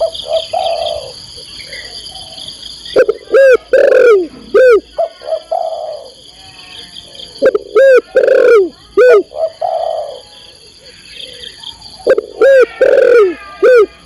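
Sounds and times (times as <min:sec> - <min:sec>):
dove cooing: 0:00.0 - 0:06.2, 0:07.1 - 0:14.0.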